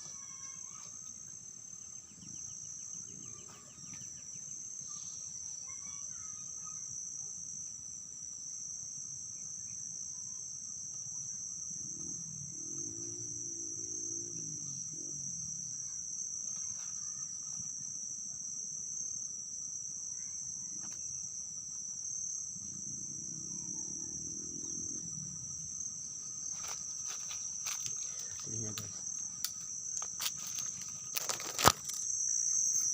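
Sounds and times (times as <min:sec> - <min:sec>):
insects shrilling: 0:00.0 - 0:07.0, 0:19.6 - 0:32.9.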